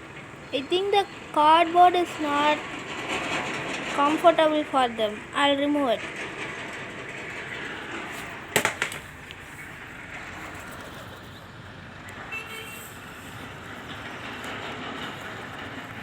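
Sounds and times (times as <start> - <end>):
urban traffic noise: 0.0 - 16.0
loud clatter: 2.6 - 11.4.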